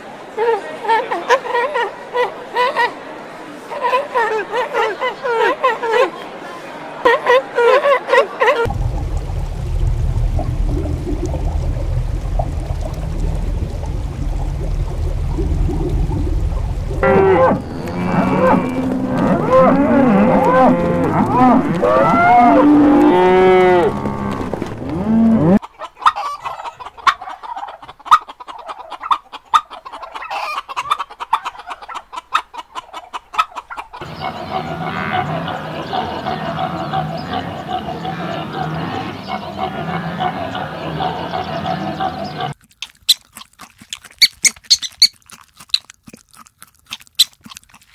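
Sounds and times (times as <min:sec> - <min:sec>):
low steady rumble: 0:08.7 - 0:19.2
cattle mooing: 0:17.0 - 0:25.6
poultry calling: 0:33.3 - 0:42.6.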